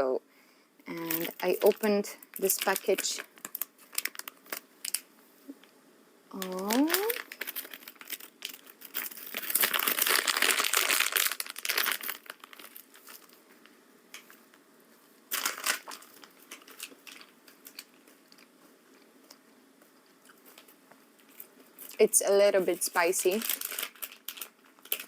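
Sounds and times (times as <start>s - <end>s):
plastic snack packet crinkling: 1.0s - 5.1s, 6.3s - 14.4s, 15.3s - 18.5s, 20.3s - 22.1s, 22.7s - 25.0s.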